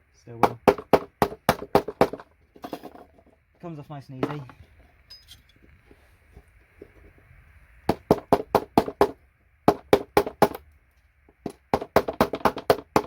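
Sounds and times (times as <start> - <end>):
hammer striking chisel: 0.4 - 2.2, 11.4 - 13.0.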